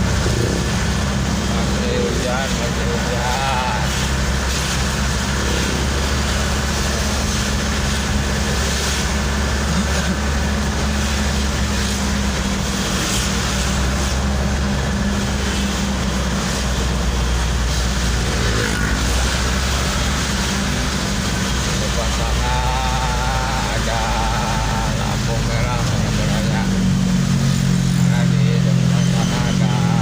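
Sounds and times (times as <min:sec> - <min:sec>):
road noise on wet roads: 0:00.0 - 0:30.0
vehicle engine hum: 0:00.0 - 0:30.0.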